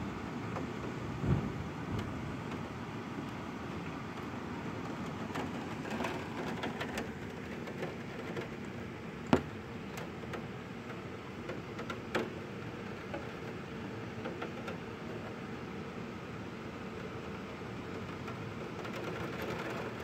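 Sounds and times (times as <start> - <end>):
wind: 0.0 - 20.0
heavy rain: 0.3 - 15.6.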